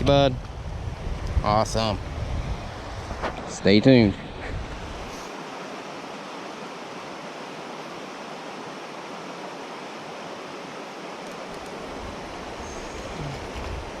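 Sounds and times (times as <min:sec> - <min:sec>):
creek water rushing over rocks: 0:04.2 - 0:14.0.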